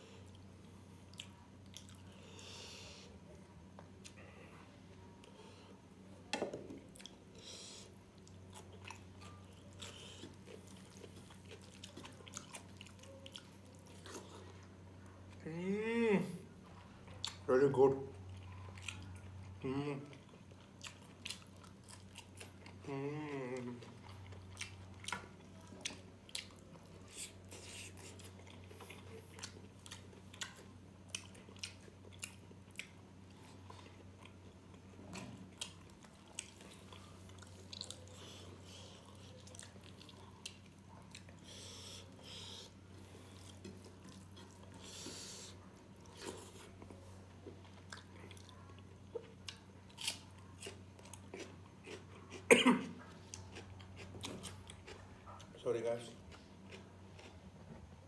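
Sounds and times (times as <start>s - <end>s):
low steady hum: 0.0s - 58.0s
chewing food: 0.2s - 5.5s, 6.6s - 15.5s, 16.6s - 58.0s
person humming: 19.6s - 20.1s, 22.8s - 23.8s.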